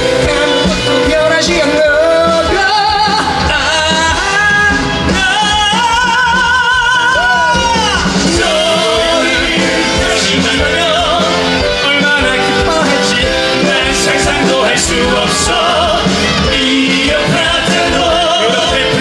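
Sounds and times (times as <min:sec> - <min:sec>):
instrumental accompaniment: 0:00.0 - 0:19.0
men singing: 0:00.0 - 0:19.0.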